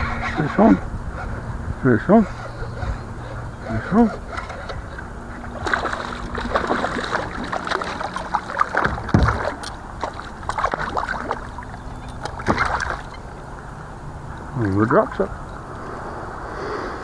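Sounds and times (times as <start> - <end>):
water splashing on kayak: 0.0 - 15.8
steady low hum: 0.0 - 17.0
heavy thump: 8.8 - 9.5.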